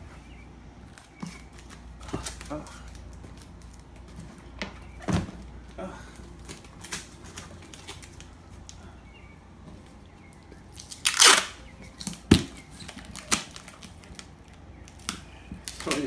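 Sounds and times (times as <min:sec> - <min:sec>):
packing tape ripping off roll: 0:10.8 - 0:16.0.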